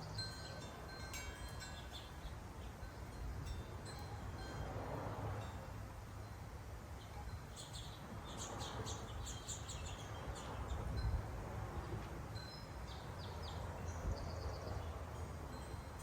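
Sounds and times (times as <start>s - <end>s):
small birds chirping: 1.6s - 3.6s, 7.0s - 11.1s, 11.8s - 15.0s.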